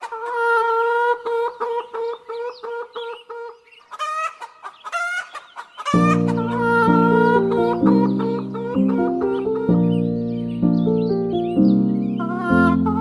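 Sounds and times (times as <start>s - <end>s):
chicken clucking: 0.0s - 13.0s
chicken squawking: 0.0s - 13.0s
backing music with held chords: 6.0s - 13.0s.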